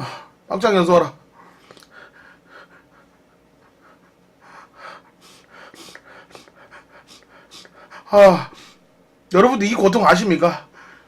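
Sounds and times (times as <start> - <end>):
man breathing hard: 1.4 - 8.8, 10.7 - 11.0.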